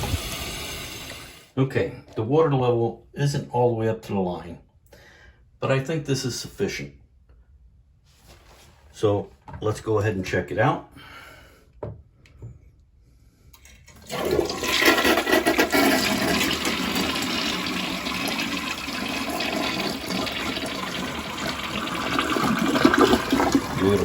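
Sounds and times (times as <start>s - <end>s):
toilet flushing water rush: 0.0s - 1.5s, 13.8s - 24.0s
faint clicks of toilet: 13.5s - 14.0s.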